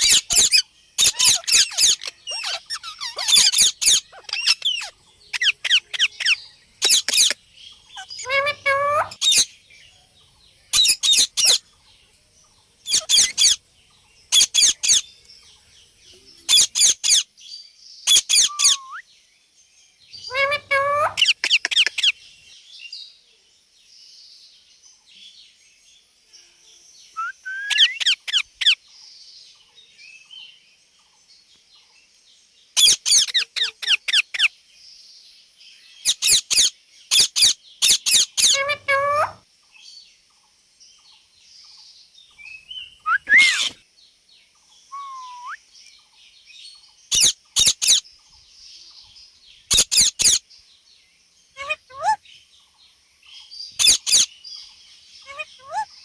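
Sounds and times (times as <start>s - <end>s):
parakeet high-pitched calls: 0.0s - 9.5s, 10.7s - 11.6s, 12.8s - 13.6s, 14.3s - 15.1s, 16.5s - 17.3s, 18.1s - 19.0s, 20.2s - 22.2s, 27.2s - 28.8s, 32.8s - 34.5s, 36.0s - 39.4s, 43.0s - 43.8s, 47.1s - 48.0s, 49.7s - 50.4s, 51.6s - 52.2s, 53.8s - 54.3s, 55.2s - 55.9s.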